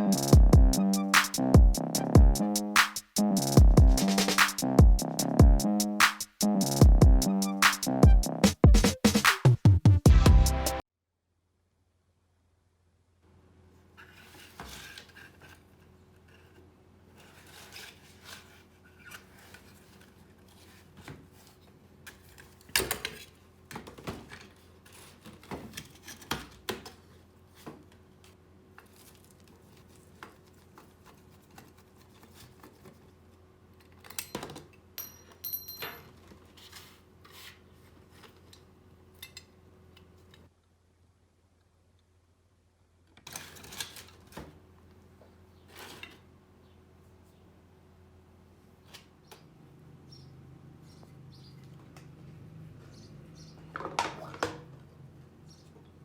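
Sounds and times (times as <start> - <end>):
small metal parts clinking: 34.0 - 36.2.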